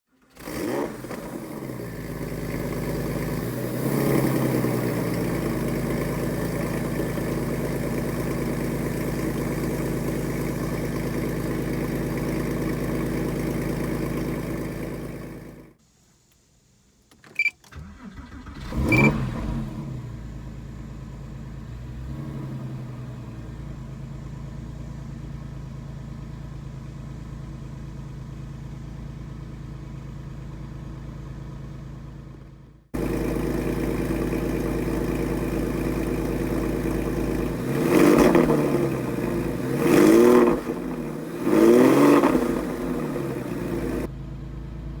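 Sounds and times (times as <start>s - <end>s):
car engine idling: 0.1s - 15.8s, 17.7s - 45.0s
click: 17.0s - 17.8s.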